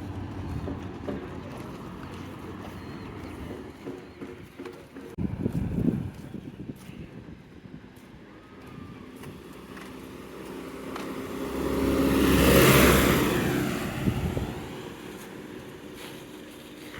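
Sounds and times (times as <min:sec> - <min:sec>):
vehicle driving past: 0:00.0 - 0:04.3, 0:08.6 - 0:16.9.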